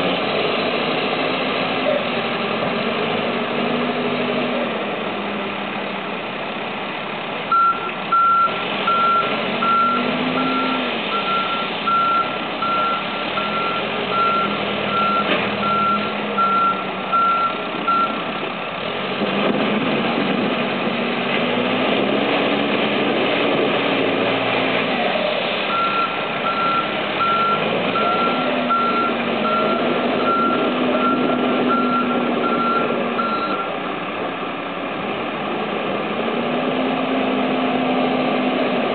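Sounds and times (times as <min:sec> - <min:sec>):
heavy diesel machinery revving: 0:00.0 - 0:38.9
reversing alarm beeping: 0:07.5 - 0:18.2, 0:25.7 - 0:33.7.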